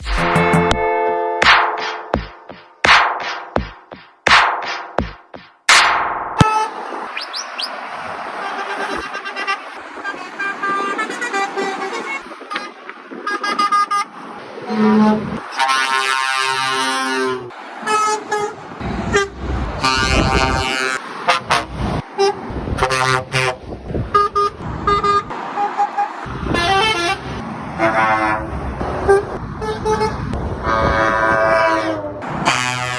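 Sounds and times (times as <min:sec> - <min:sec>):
highway traffic noise: 0:00.4 - 0:32.9
long truck horn blasts: 0:06.4 - 0:07.1, 0:07.9 - 0:32.9
truck horns tooting: 0:06.4 - 0:32.9.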